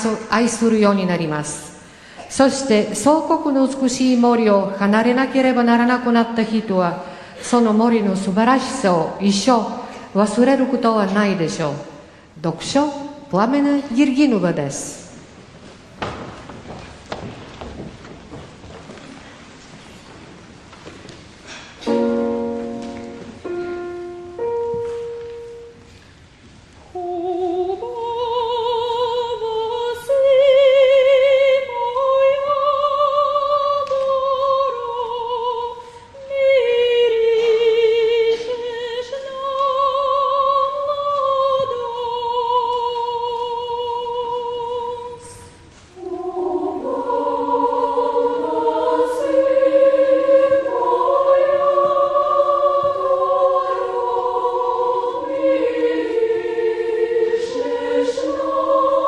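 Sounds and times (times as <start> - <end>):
children's choir singing in harmony: 21.5 - 26.2, 26.8 - 59.0
solo voice singing with vibrato: 26.9 - 59.0.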